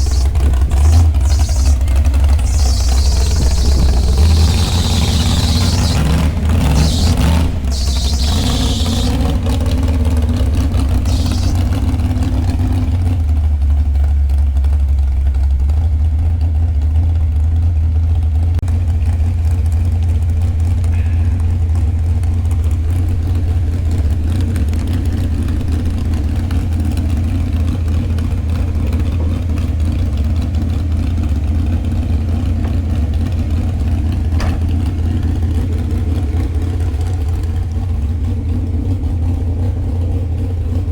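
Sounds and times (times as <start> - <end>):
hissing rush of noise: 0.0 - 9.5, 10.8 - 11.8
truck engine droning: 0.0 - 40.9.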